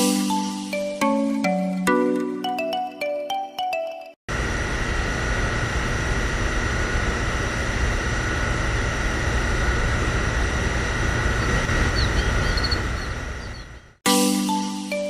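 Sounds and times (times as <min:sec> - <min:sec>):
small water pump whining: 0:04.3 - 0:14.0.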